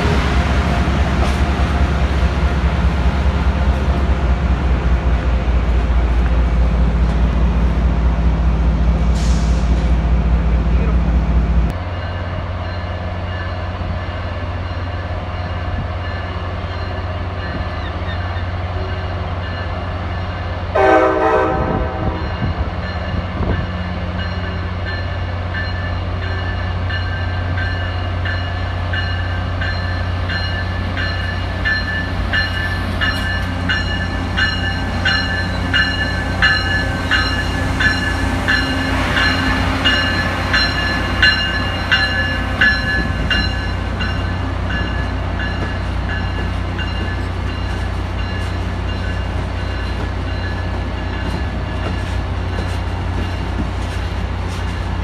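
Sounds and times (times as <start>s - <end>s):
train horn blast: 20.7s - 22.6s.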